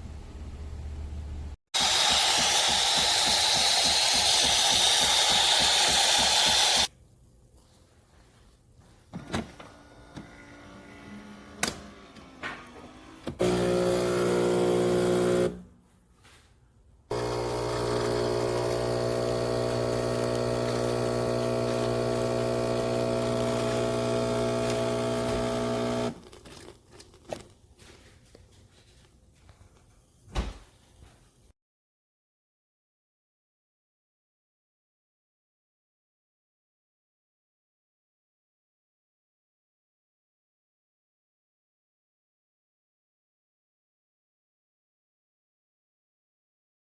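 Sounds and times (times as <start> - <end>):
espresso machine humming: 1.8 - 6.9, 13.4 - 15.6, 17.1 - 26.2.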